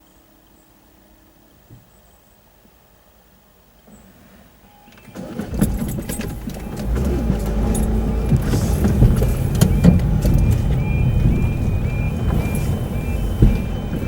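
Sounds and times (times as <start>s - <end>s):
wheels clattering over rails: 5.0s - 14.0s
train rumbling: 5.4s - 14.0s.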